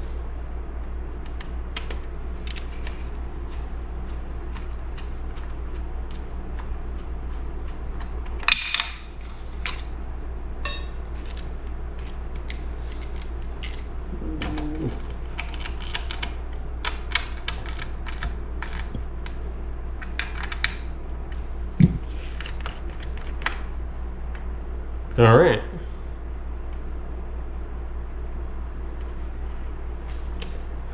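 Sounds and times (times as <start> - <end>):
steady low hum: 0.0 - 30.9
small parts clicking and tapping: 10.6 - 13.9, 14.9 - 19.4, 20.0 - 23.7.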